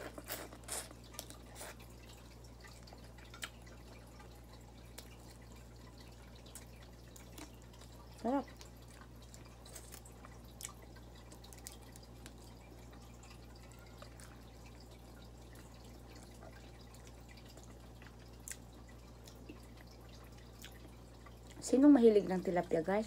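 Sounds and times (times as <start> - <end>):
low steady hum: 0.0 - 23.0
wet chewing clicks and smacks: 2.6 - 5.6, 6.3 - 12.6, 15.5 - 21.6.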